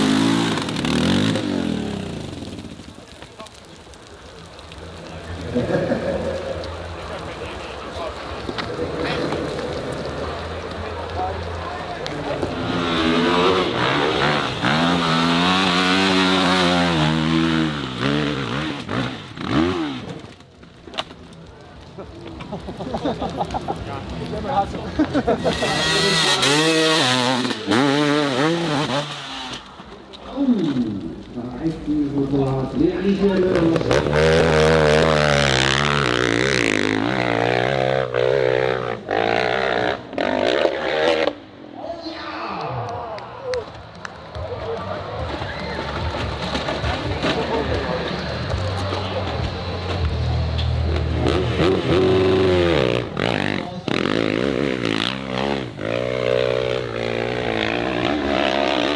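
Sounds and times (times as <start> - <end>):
dirt bike engine revving: 0.0 - 2.9, 12.3 - 20.3, 25.2 - 29.6, 33.1 - 41.4, 50.7 - 58.9.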